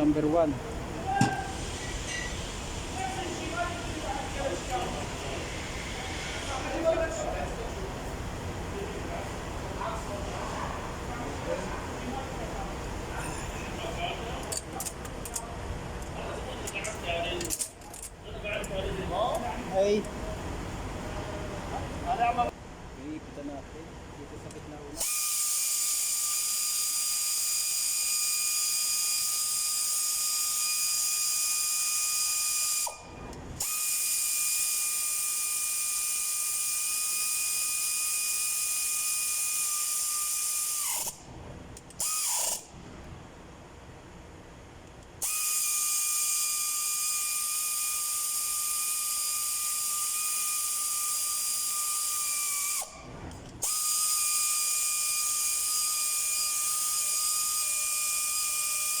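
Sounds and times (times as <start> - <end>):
power tool motor whine: 45.2 - 52.9, 53.6 - 59.0.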